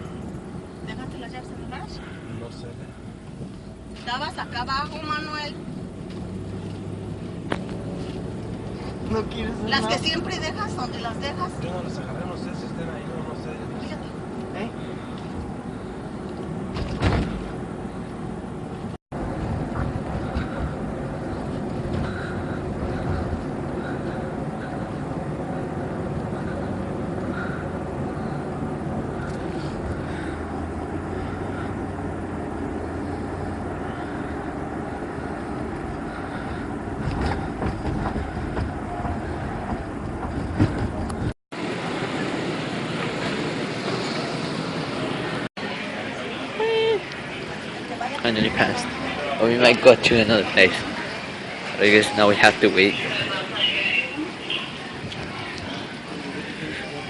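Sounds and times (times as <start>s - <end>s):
car interior rumble: 0.0s - 41.4s
sharp thump: 16.7s - 17.5s.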